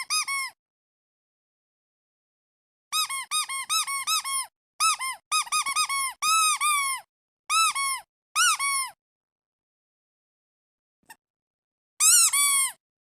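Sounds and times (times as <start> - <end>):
rubber duck toy squeaking: 0.0 - 0.6, 2.9 - 9.0, 12.0 - 12.8.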